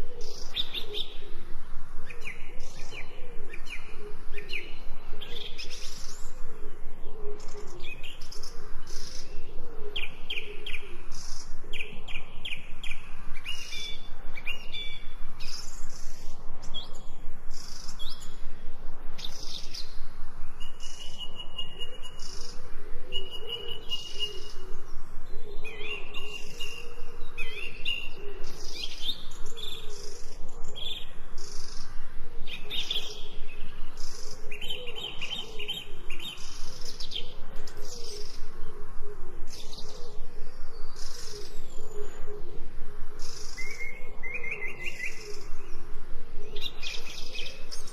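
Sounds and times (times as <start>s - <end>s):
birds chirping and singing: 0.0s - 47.9s.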